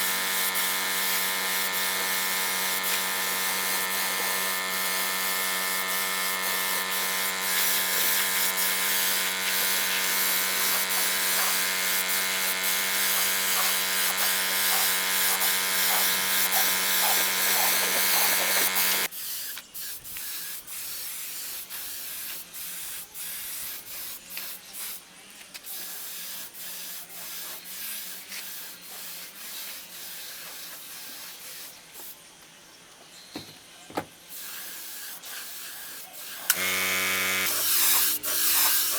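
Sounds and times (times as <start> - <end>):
power tool motor running: 0.0 - 19.1, 36.2 - 38.9.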